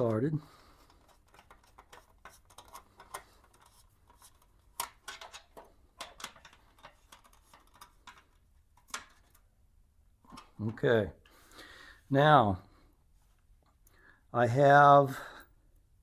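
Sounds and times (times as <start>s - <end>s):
screwdriver and bolt clicking: 0.9s - 9.2s.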